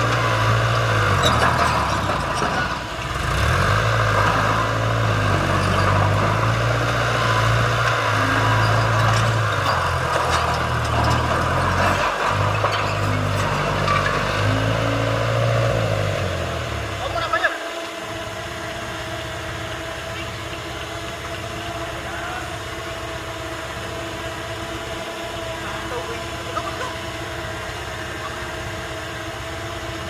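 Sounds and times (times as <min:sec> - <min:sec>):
heavy diesel engine humming: 0:00.0 - 0:30.0.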